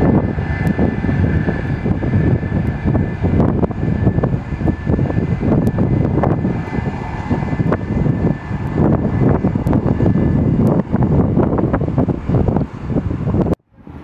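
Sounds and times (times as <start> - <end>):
aircraft engines roaring: 0.0 - 14.0.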